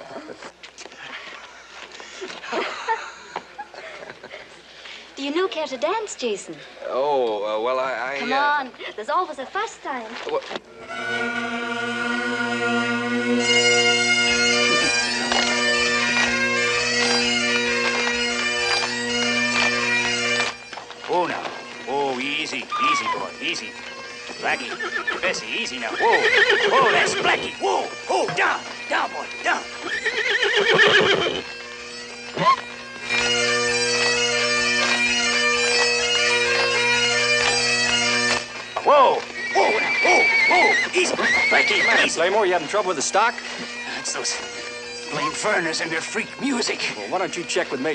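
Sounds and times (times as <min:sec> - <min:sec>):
bagpipes playing dance tune: 0:10.6 - 0:47.9
horse whinnying: 0:24.4 - 0:27.5, 0:29.8 - 0:31.5, 0:32.4 - 0:32.6, 0:39.4 - 0:42.2.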